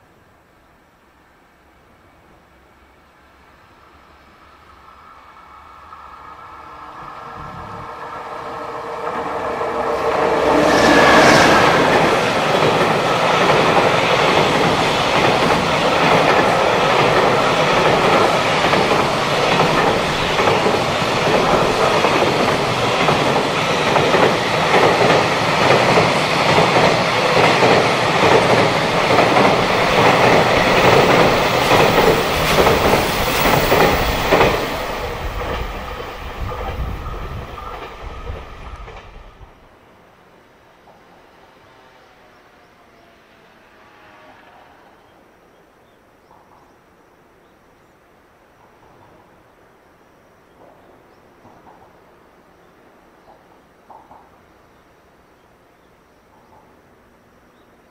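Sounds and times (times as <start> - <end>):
electric locomotive passing: 1.6 - 47.0.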